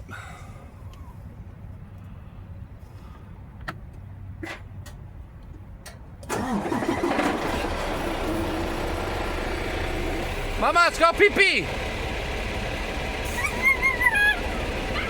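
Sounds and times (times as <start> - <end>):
engine starting and idling: 6.2 - 15.0
low steady rumble: 7.9 - 15.0.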